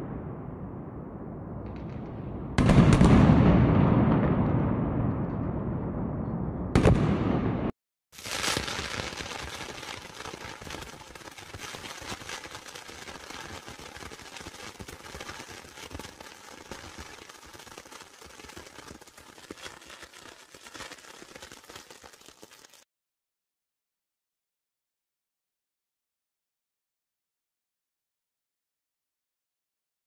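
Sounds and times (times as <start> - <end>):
firework burst: 6.8 - 22.8
fireworks crackling pops: 8.2 - 22.9.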